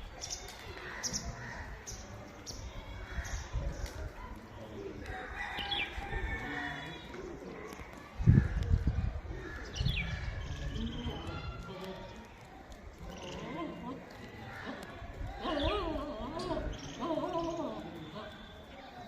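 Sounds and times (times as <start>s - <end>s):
birds chirping: 13.0s - 19.0s.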